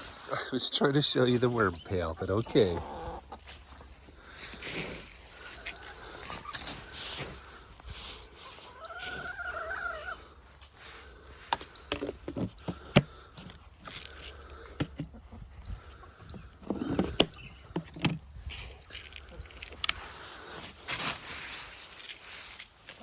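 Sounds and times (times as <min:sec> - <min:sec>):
hen calling: 0:00.0 - 0:12.0, 0:12.6 - 0:17.8.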